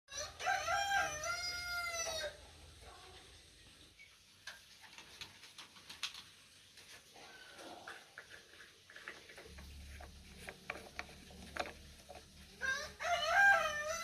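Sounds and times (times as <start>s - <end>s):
rooster crowing: 0.1s - 2.4s, 12.6s - 14.0s
faint clicks and taps: 7.9s - 12.5s.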